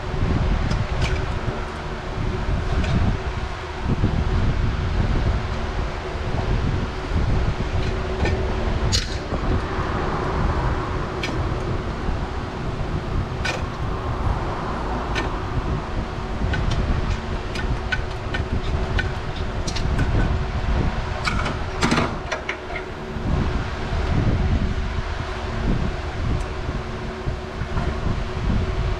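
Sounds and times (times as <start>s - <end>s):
wind rumbling on microphone: 0.0s - 28.9s.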